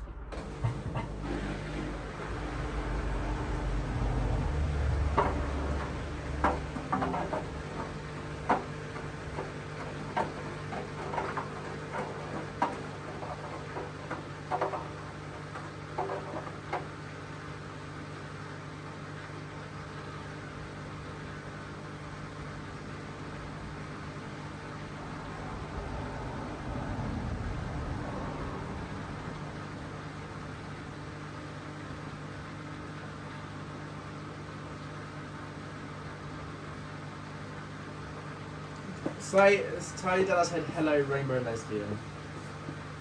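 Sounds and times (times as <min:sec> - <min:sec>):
low rumble: 0:00.0 - 0:01.2, 0:24.8 - 0:29.9
washing machine humming: 0:00.0 - 0:43.0.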